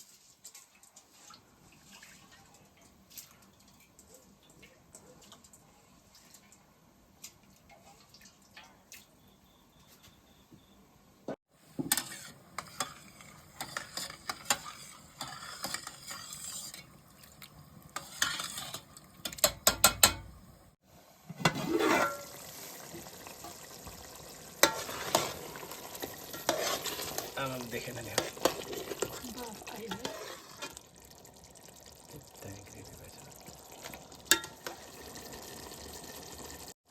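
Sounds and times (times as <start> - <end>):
food sizzling in a pan: 11.5 - 36.9
metal spoon scraping a pan: 11.7 - 17.0, 17.9 - 20.4, 21.4 - 22.3, 24.6 - 30.8, 34.3 - 34.9.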